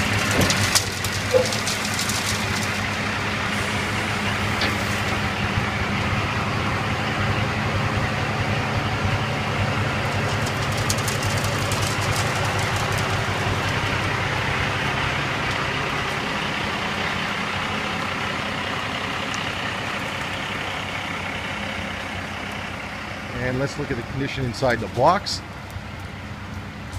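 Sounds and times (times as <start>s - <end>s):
diesel truck engine running: 0.0s - 26.9s.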